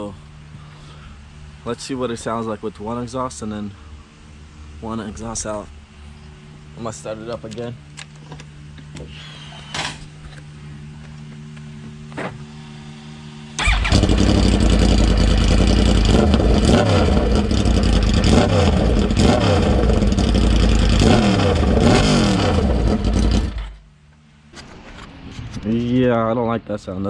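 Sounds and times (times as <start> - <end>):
motorcycle engine revving: 12.1 - 23.8.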